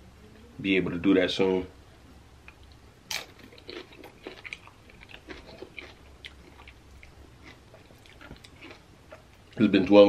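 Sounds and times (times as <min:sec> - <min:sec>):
crunchy chewing of chips: 0:02.5 - 0:10.0.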